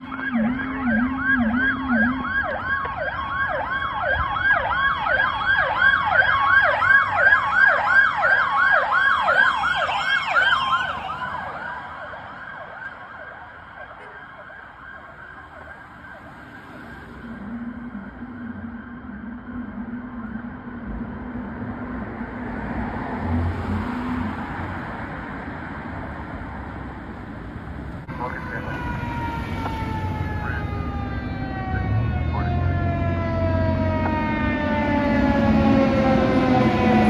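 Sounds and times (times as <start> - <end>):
low wavering siren tone: 0.0 - 6.7, 17.2 - 21.7, 28.5 - 37.0
fire engine siren yelping: 0.0 - 22.3, 28.0 - 37.0.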